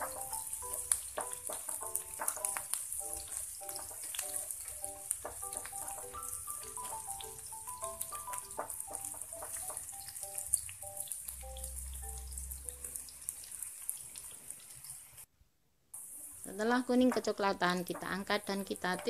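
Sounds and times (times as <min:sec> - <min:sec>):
background music with simple melody: 0:00.0 - 0:13.1
shallots sizzling in hot oil: 0:00.0 - 0:15.3, 0:16.0 - 0:19.0.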